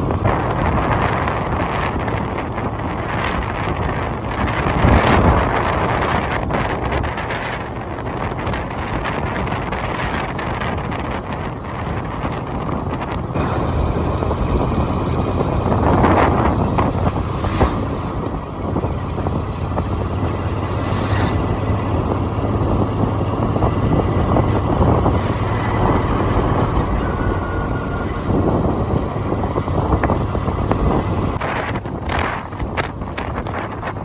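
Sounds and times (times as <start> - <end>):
motorcycle road noise: 0.0 - 34.0
wind buffeting microphone: 0.0 - 34.0
high-pitched swishes: 15.7 - 19.2, 20.0 - 22.1.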